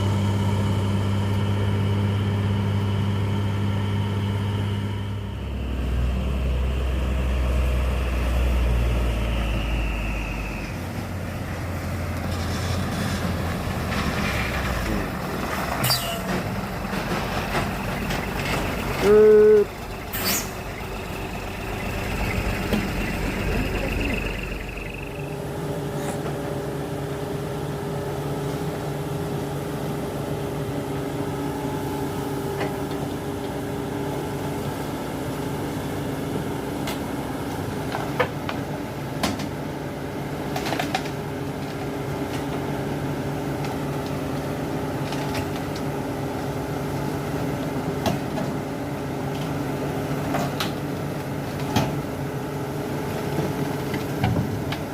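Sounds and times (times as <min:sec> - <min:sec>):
high whine: 0:00.0 - 0:11.2, 0:14.8 - 0:26.0
diesel engine running: 0:00.0 - 0:54.9.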